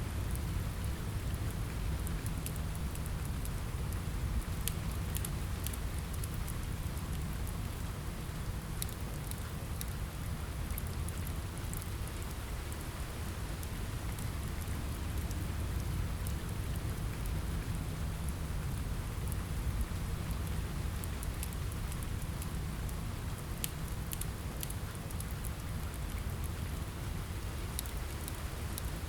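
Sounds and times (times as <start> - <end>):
steady rain: 0.0 - 29.0
fireplace crackles: 10.7 - 29.0.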